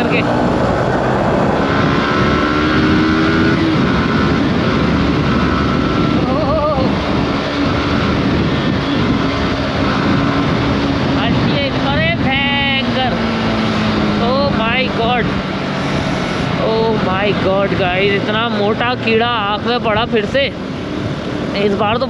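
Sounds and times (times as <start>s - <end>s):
motorcycle engine at speed: 0.0s - 22.0s
wind rush on microphone: 0.0s - 22.0s.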